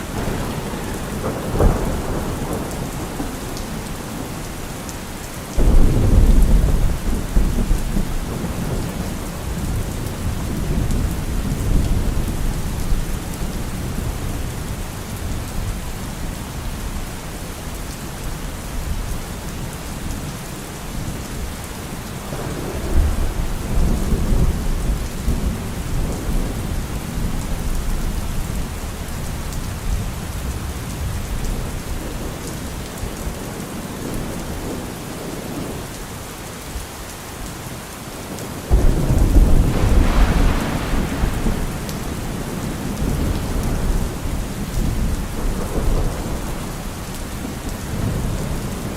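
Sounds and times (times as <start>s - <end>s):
thunder rumbling: 0.0s - 16.2s, 22.2s - 32.5s, 38.7s - 48.9s
heavy rain: 0.0s - 48.9s.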